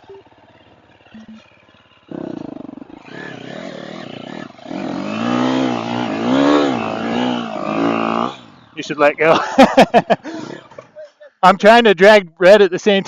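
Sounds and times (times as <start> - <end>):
dirt bike engine revving: 0.0 - 9.9.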